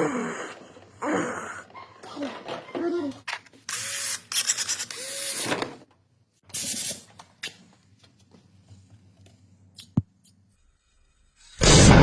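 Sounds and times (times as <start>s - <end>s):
tools and parts clicking: 3.3s - 5.6s.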